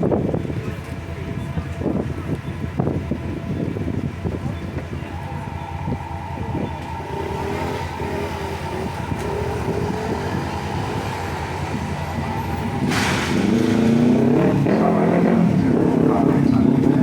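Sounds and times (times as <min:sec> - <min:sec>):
vehicles passing close: 0:00.0 - 0:17.0.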